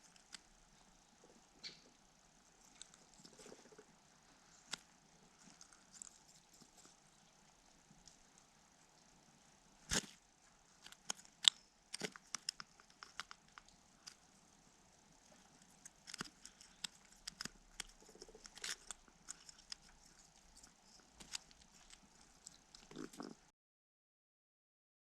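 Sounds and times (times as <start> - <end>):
sharp clicks and crackles: 10.8 - 14.3, 15.2 - 23.4.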